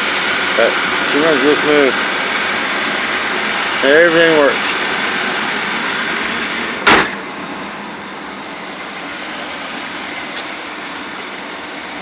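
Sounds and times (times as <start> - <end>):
engine idling: 0.0 - 12.0
sharp knock: 6.8 - 7.2.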